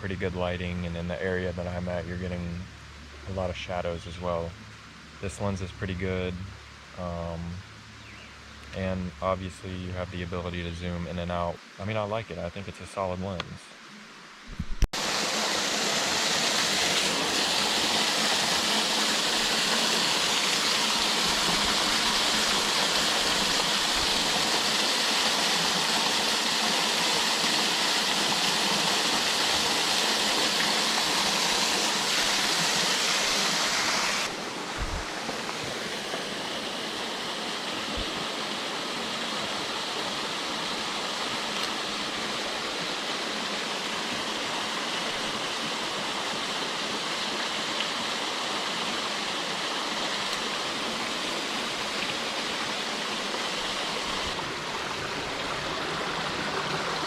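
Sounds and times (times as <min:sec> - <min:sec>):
waterfall rushing: 0:14.8 - 0:57.0.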